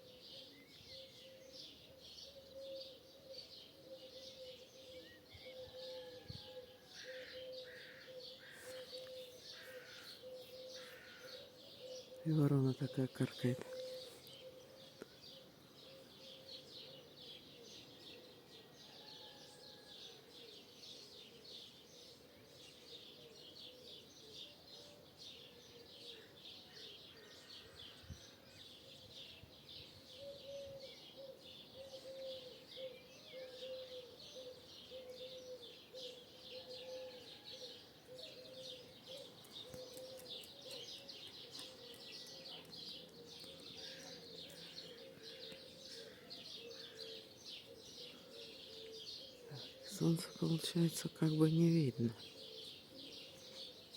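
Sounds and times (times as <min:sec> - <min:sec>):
starlings chirping and chattering: 0:25.2 - 0:53.9.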